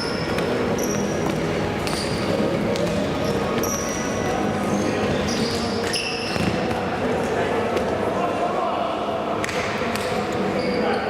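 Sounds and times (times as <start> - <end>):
shoes squeaking on court floor: 0.0 - 6.8, 10.3 - 11.0.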